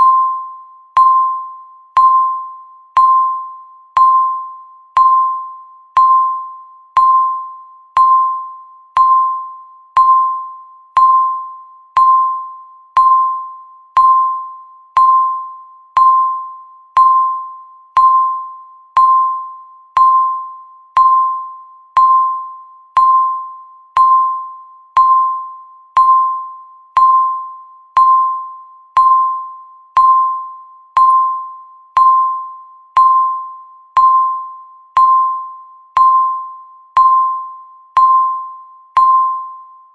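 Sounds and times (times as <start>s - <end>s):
timer beeps: 0.0s - 39.9s.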